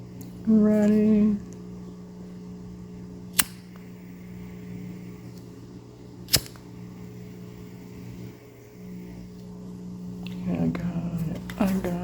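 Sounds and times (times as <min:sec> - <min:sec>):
steady low hum: 0:00.0 - 0:12.0
lighter clicking: 0:03.3 - 0:03.9, 0:06.3 - 0:06.7.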